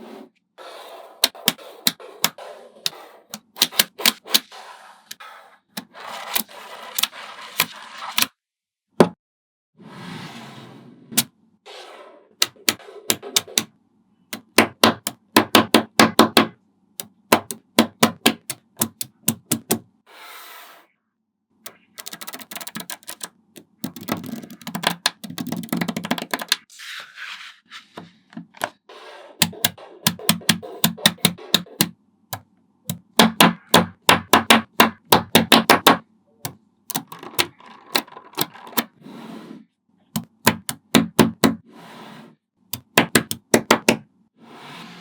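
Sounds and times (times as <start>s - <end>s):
magnetic balls clicking: 12.4s - 13.7s, 14.3s - 19.8s, 21.7s - 26.7s, 29.4s - 36.0s, 36.9s - 38.9s, 40.2s - 41.6s, 42.8s - 44.0s
balls rattling together: 37.0s - 38.8s.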